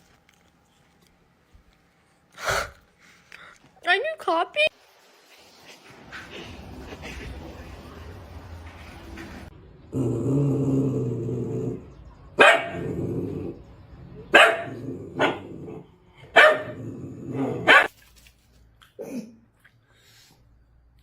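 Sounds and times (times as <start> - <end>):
dog growling: 9.9 - 11.9, 12.7 - 13.7, 14.6 - 16.0, 16.6 - 17.7
dog barking: 12.4 - 12.9, 14.3 - 15.5, 16.3 - 16.8, 17.4 - 17.9.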